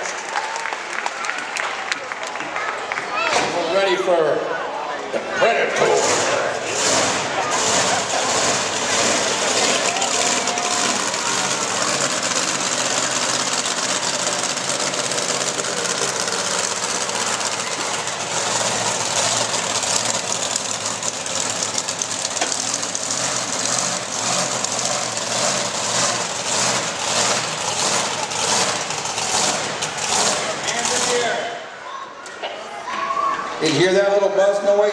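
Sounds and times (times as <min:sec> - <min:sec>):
monster truck engine running: 0:05.7 - 0:31.7.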